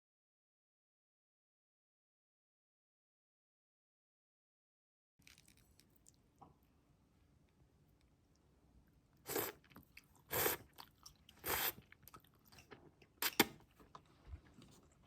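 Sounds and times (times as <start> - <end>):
crisp eating mouth sounds: 5.2 - 6.2, 9.2 - 15.0.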